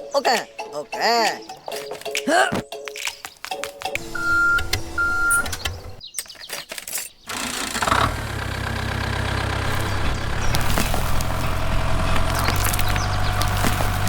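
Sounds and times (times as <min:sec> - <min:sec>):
engine idling: 0:04.0 - 0:06.0, 0:07.3 - 0:14.0.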